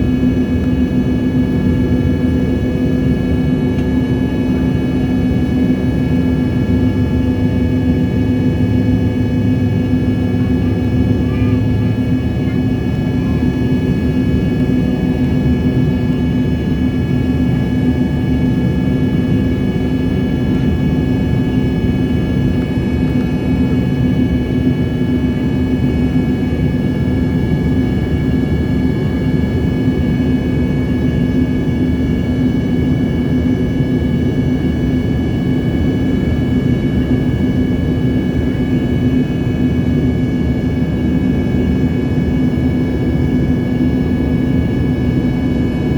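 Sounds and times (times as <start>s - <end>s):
airliner engines droning: 0.0s - 45.9s.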